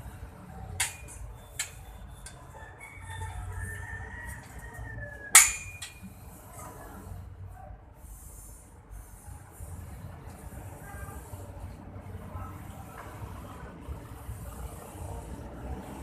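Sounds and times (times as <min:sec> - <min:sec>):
rooster crowing: 0:02.5 - 0:05.4.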